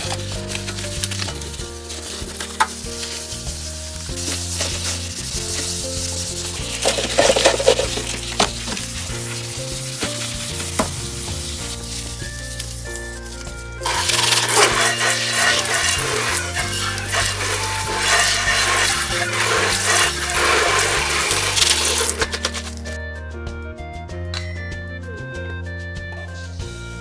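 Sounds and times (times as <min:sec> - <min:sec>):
food sizzling in a pan: 0:00.0 - 0:23.0
utensil clicking against pan: 0:13.8 - 0:23.0.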